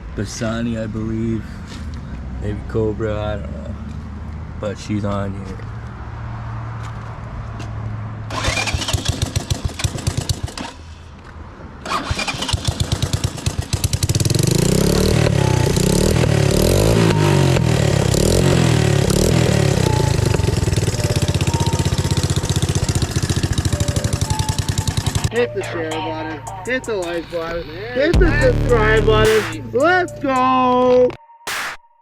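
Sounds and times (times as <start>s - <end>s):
single-cylinder engine starting and running: 8.3s - 11.1s, 11.8s - 25.4s.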